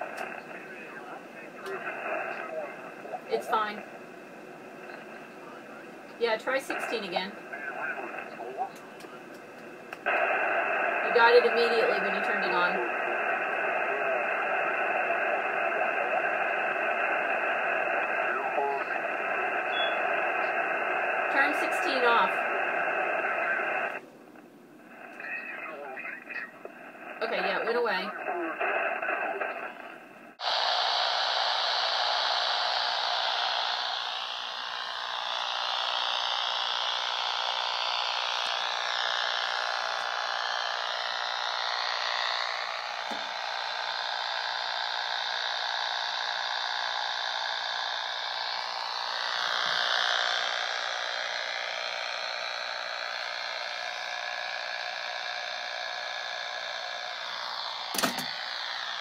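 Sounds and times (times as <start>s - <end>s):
radio white noise with wavering tones: 0.0s - 59.0s
sharp click: 57.9s - 58.4s.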